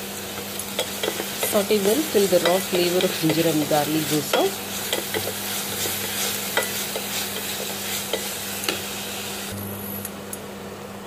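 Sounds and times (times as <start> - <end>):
vegetables sizzling in a pan: 0.0 - 10.0
spatula knocking and scraping pan: 0.8 - 8.9.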